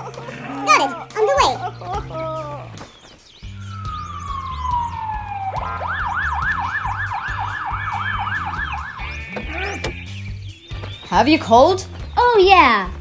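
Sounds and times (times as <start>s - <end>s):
ambulance siren wailing and yelping: 3.5s - 10.2s.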